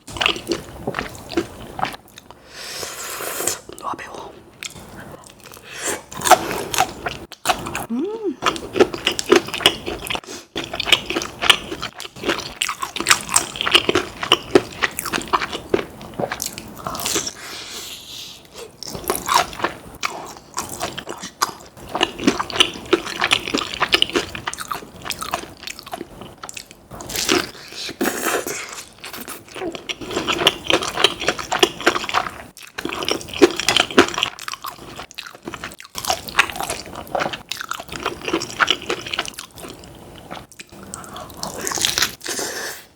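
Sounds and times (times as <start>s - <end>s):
crunchy chewing of fried food: 0.0s - 2.4s, 4.6s - 17.6s, 18.5s - 42.8s.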